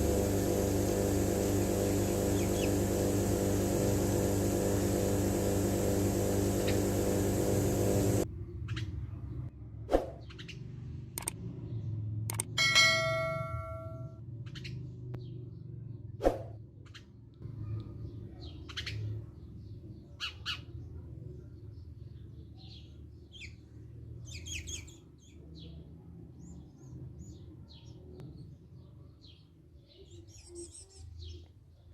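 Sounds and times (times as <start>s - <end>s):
steady low hum: 0.0s - 8.5s
sharp click: 12.3s - 12.6s.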